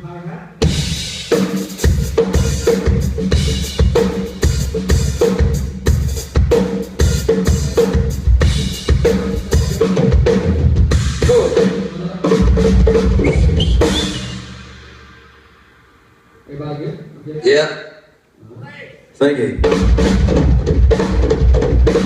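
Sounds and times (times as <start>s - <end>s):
snare drum: 19.6s - 22.0s
tom drum ringing: 19.6s - 22.0s.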